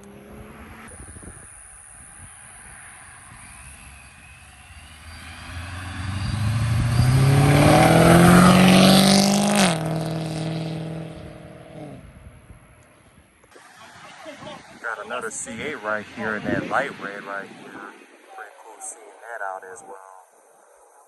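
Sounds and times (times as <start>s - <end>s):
car accelerating past: 0.0s - 12.7s.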